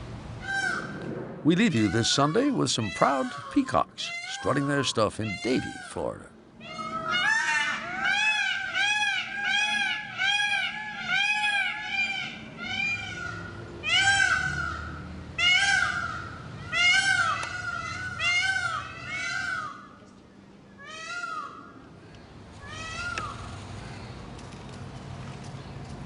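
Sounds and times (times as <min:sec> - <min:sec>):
peacocks calling: 0:00.4 - 0:26.0.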